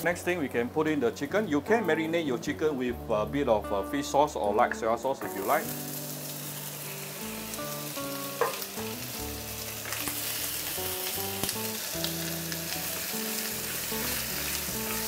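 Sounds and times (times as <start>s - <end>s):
chicken sizzling in hot oil: 5.2s - 15.0s.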